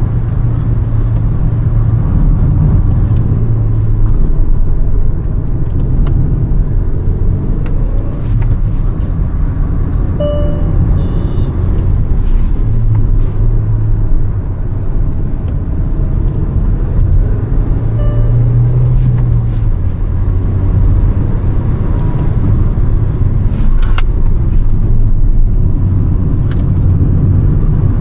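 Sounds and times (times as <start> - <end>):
car engine droning: 0.0 - 28.0
short beep: 10.2 - 11.6, 18.0 - 18.9.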